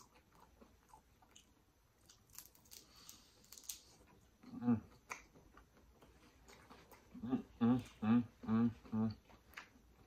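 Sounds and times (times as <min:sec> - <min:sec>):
crunching crispy prawn: 0:02.0 - 0:04.0
person humming mm: 0:07.2 - 0:09.2.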